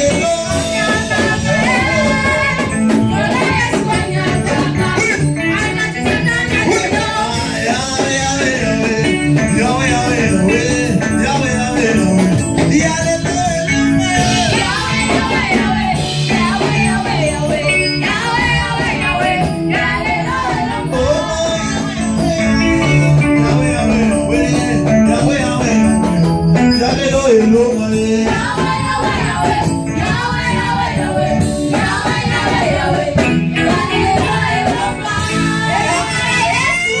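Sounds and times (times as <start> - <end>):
drums: 0.0 - 37.0
guitar: 0.0 - 37.0
church choir singing: 13.7 - 25.6, 28.2 - 37.0.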